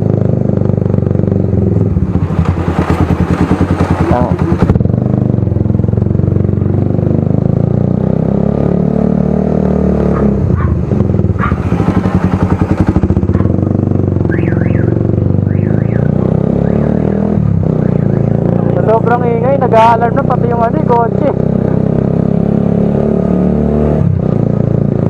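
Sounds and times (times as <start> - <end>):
motorcycle revving loudly: 0.0 - 25.0
car alarm warbling: 14.2 - 18.6.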